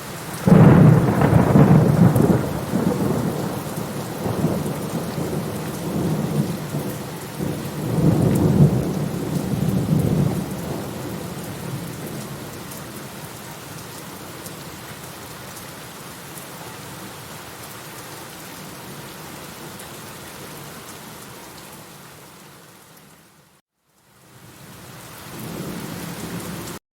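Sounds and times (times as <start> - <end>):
steady rain: 0.0 - 26.8
thunder rumbling: 0.4 - 12.6.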